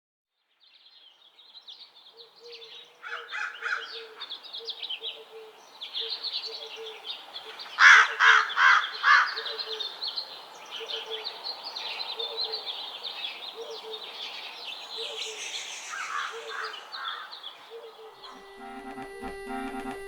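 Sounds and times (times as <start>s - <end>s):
songbirds chirping: 0.4s - 19.0s
crow cawing: 3.0s - 4.3s, 7.8s - 9.8s, 15.9s - 18.4s.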